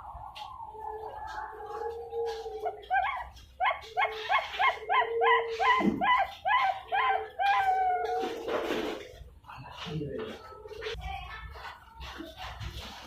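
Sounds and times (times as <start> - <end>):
dove cooing: 0.0 - 9.0.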